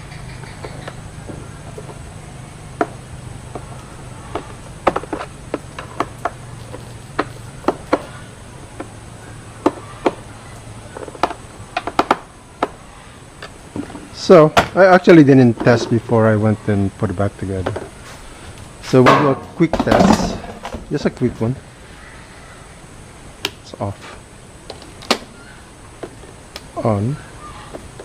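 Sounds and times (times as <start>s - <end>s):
plastic parts clicking and knocking: 10.9s - 12.8s.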